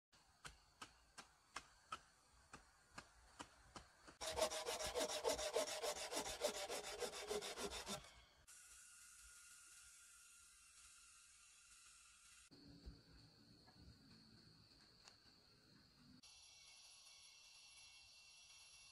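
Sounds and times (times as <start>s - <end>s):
hand saw cutting wood: 4.1s - 8.1s.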